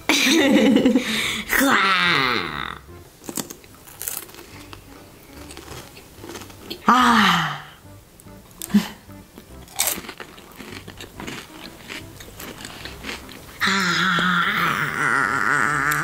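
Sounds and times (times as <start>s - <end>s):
crunchy biting and chewing: 3.2s - 6.9s, 9.4s - 13.8s.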